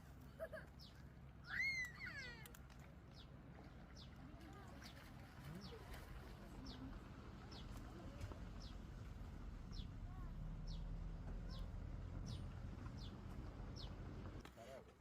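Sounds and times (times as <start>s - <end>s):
low steady rumble: 2.2s - 14.4s.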